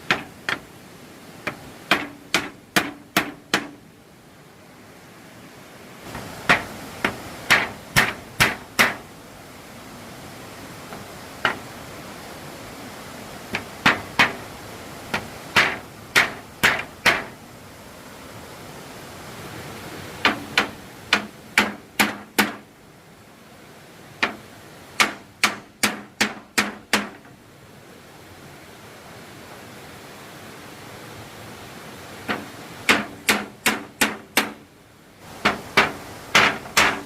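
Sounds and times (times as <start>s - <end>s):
hammer striking wood: 0.0s - 0.6s, 1.5s - 3.8s, 6.4s - 9.0s, 13.6s - 14.4s, 15.1s - 17.4s, 20.2s - 22.6s, 25.0s - 27.3s, 32.3s - 34.6s, 35.4s - 37.0s.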